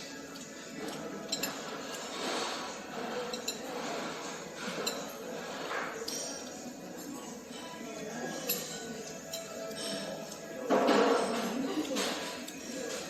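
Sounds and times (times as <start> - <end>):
utensils clinking against dish: 0.0 - 13.0.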